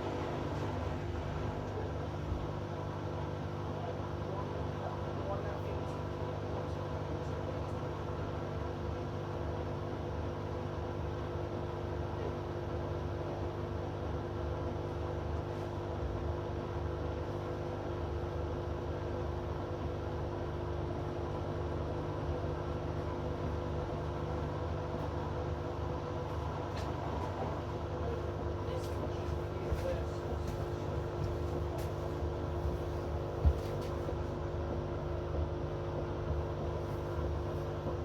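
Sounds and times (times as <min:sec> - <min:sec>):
washing machine humming: 0:00.0 - 0:03.9, 0:15.4 - 0:38.0.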